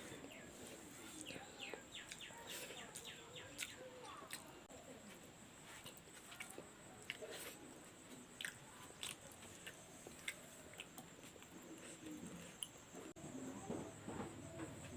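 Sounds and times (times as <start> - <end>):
person chewing: 0.1 - 4.6, 5.7 - 12.8.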